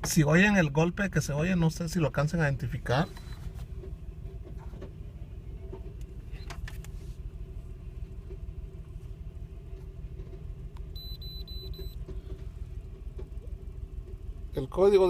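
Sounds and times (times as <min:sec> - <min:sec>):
van engine idling roughly: 0:00.0 - 0:15.0
faint engine knocks: 0:03.0 - 0:14.8.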